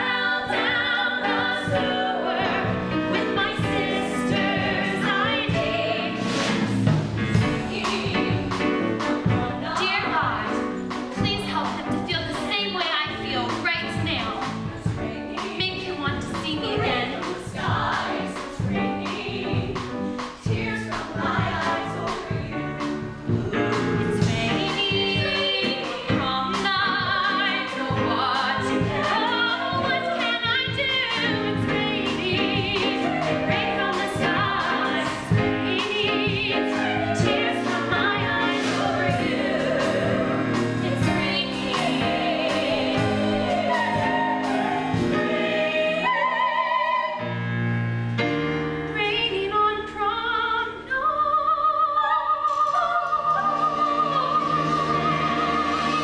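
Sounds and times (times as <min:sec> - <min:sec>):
cast singing with live band: 0:52.1 - 0:56.0.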